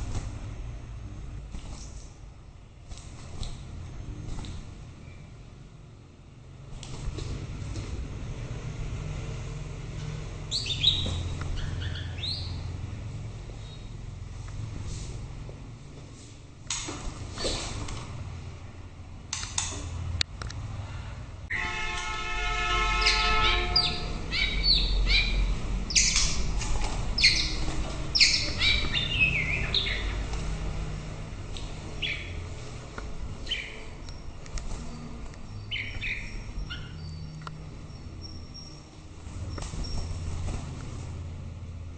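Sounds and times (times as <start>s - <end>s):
steady low hum: 0.0s - 21.5s
bird song whistled notes: 10.5s - 12.7s, 23.0s - 26.4s, 27.2s - 30.2s, 32.0s - 32.4s, 33.4s - 34.3s, 35.5s - 38.8s
held horn-like tone: 21.5s - 24.3s.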